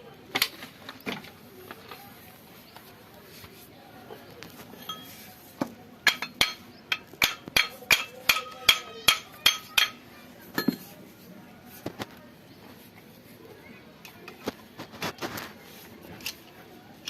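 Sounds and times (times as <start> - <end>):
hammer striking metal: 6.1 - 10.0.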